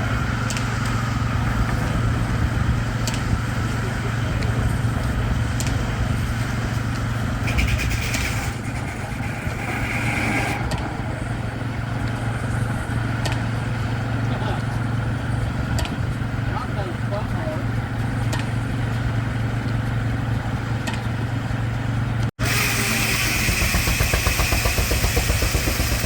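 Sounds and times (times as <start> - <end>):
high-pitched sawmill whine: 6.0 - 15.4, 22.4 - 26.0
steam engine running: 22.4 - 26.0.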